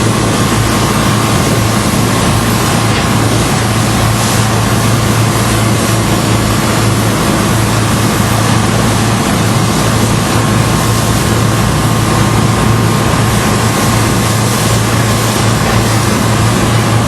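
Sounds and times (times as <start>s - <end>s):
engine hum: 0.0s - 17.0s
loud rushing noise: 0.0s - 17.0s.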